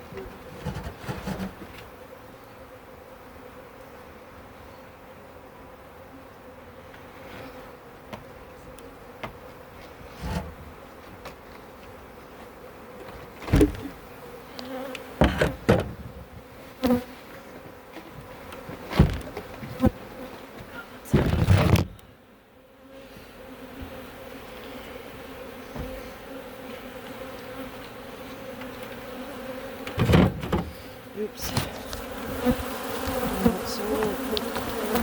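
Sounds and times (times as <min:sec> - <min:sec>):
rustle: 0:00.0 - 0:15.3
honeybees buzzing: 0:00.0 - 0:35.0
hive equipment knocks: 0:15.2 - 0:16.3, 0:18.8 - 0:19.8, 0:21.1 - 0:22.0, 0:29.8 - 0:30.8.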